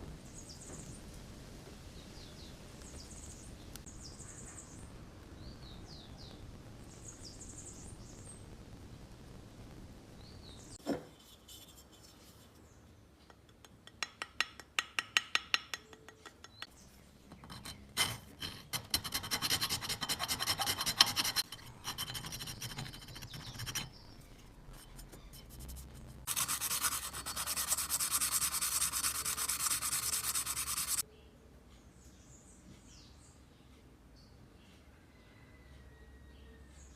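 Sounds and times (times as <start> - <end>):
steel wool scrubbing: 17.4 - 24.0, 24.7 - 31.0.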